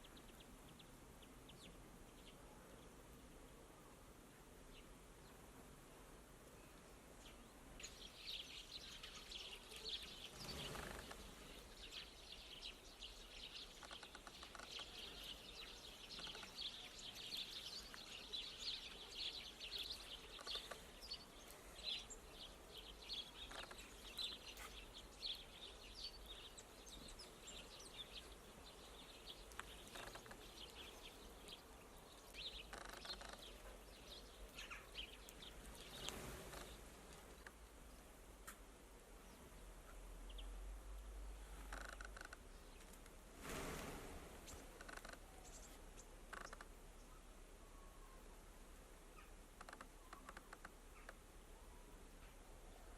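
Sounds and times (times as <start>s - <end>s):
finches twittering: 7.3s - 37.6s.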